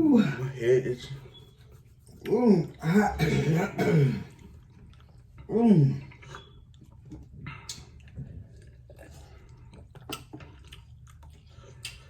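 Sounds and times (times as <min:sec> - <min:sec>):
person chewing wet mouth clicks: 0:06.3 - 0:12.0.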